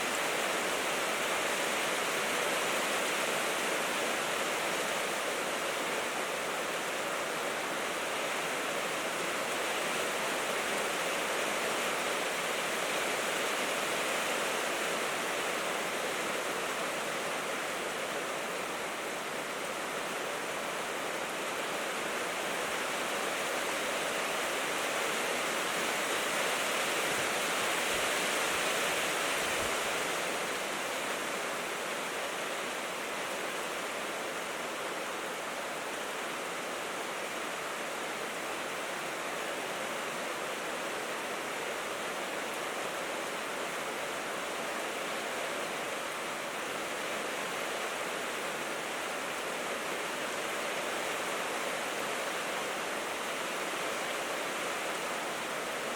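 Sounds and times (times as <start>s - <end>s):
rain on a tin roof: 0.0s - 55.9s.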